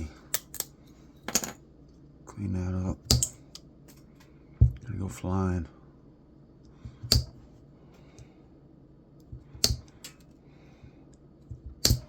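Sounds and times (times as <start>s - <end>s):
hand cutters snipping metal: 9.6s - 10.2s, 11.8s - 12.0s.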